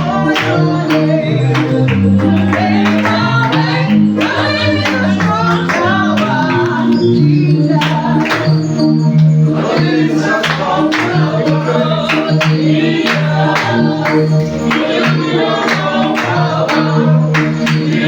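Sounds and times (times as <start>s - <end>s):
band playing: 0.0s - 18.0s
group singing worship music: 0.0s - 18.0s.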